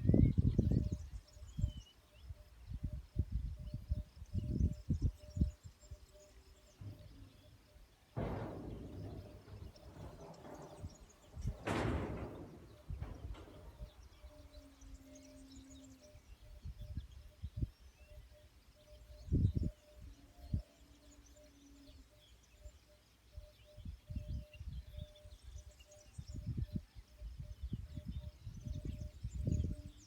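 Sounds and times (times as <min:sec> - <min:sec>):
faint birds chirping: 0:00.0 - 0:30.0
low thumps or rumbles: 0:06.7 - 0:14.5.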